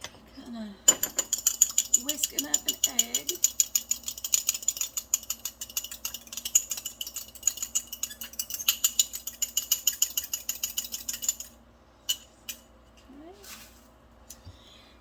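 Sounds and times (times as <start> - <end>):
egg whisked in a bowl: 0.9 - 11.6.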